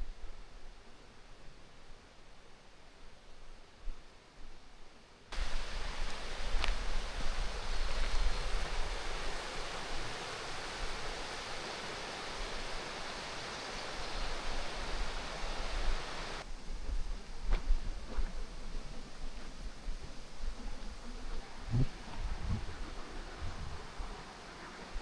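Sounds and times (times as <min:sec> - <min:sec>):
waterfall rushing: 0:05.4 - 0:16.4.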